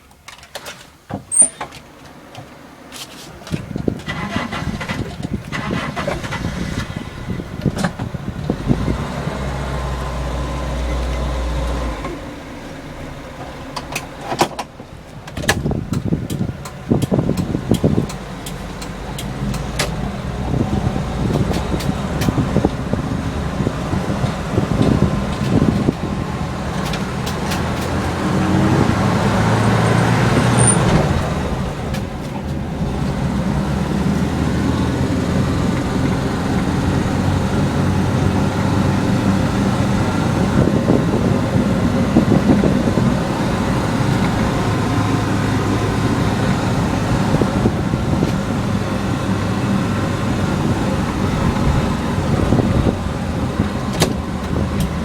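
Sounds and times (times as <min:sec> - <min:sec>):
road noise: 0:00.0 - 0:55.0
car engine running: 0:02.5 - 0:55.0
sharp clicks: 0:15.4 - 0:20.4.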